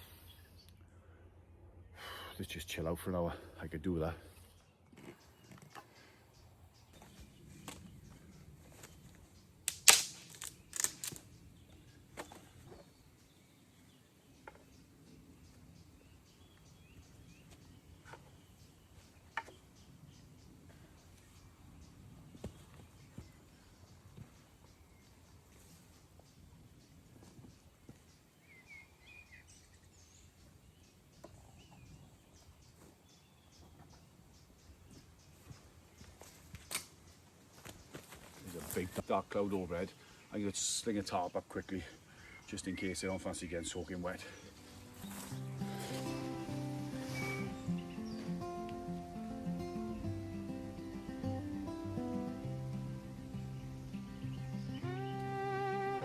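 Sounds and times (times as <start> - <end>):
faint birdsong: 0.0 - 56.0
dry twigs snapping: 9.6 - 11.4, 36.6 - 37.0.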